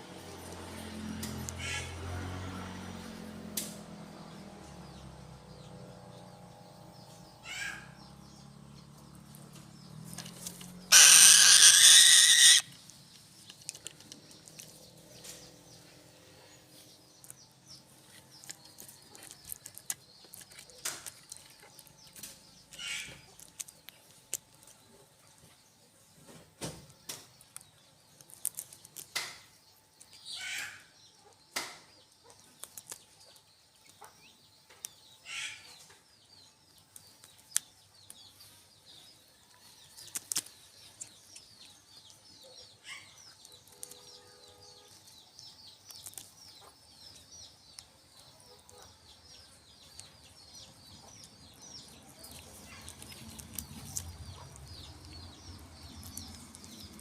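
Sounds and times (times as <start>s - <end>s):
birds calling: 0.0s - 57.0s.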